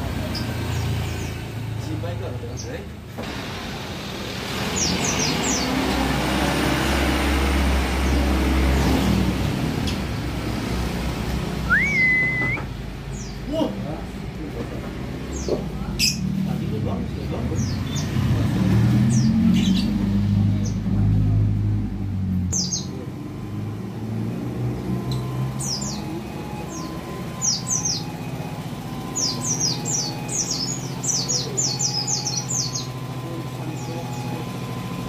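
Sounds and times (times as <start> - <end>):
bird chirps sliding down in pitch: 11.7 - 12.7.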